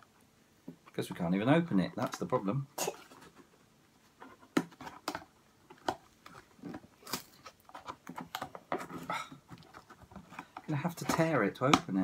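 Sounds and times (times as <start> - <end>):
packaging clicks and rustles: 4.4 - 12.0.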